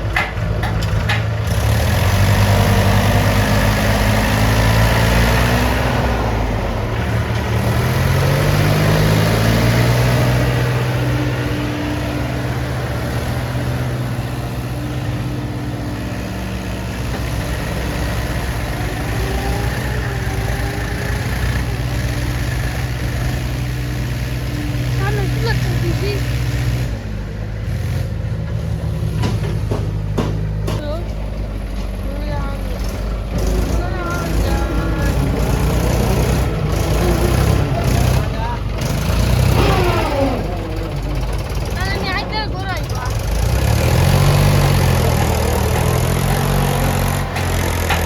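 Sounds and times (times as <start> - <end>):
tractor diesel engine revving: 0.0 - 48.0.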